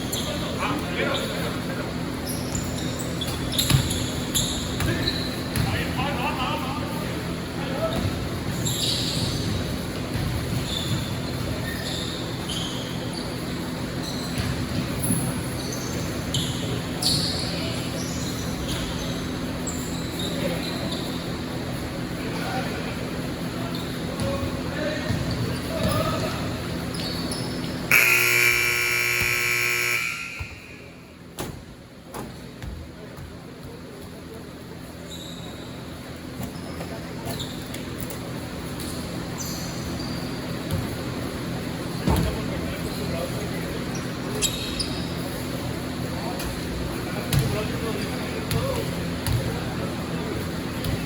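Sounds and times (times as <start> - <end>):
sneakers squeaking on court: 0.0 - 6.3, 7.2 - 22.2, 23.1 - 51.0
hum of hall: 0.0 - 51.0
scoreboard buzzer: 27.9 - 31.0.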